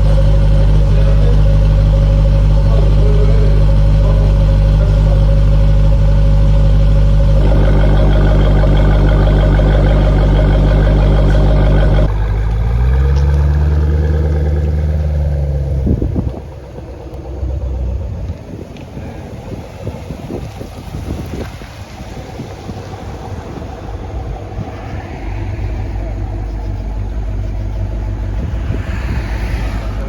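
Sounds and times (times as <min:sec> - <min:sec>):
loud car engine drone: 0:00.0 - 0:30.0.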